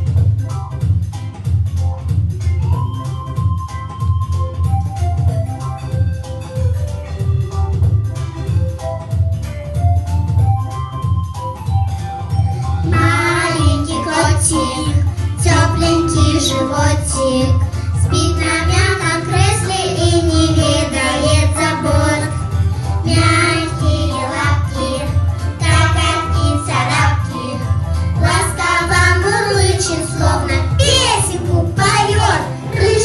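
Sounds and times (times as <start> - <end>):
backing track with bass beat: 0.0 - 14.3
girls singing together: 12.9 - 22.4, 23.1 - 25.0, 25.6 - 33.0.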